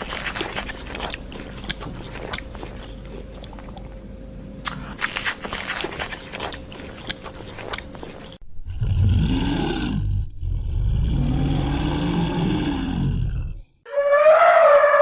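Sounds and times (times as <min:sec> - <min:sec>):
animal chewing and crunching food: 0:00.0 - 0:08.4.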